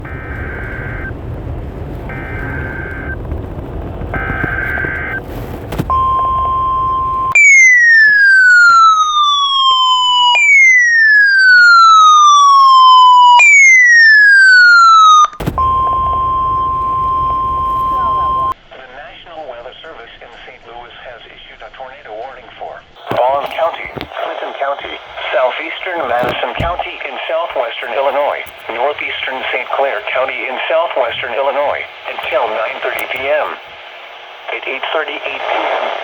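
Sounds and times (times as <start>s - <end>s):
radio hiss: 0.0s - 7.4s, 15.4s - 36.0s
high alarm tone: 5.9s - 18.6s.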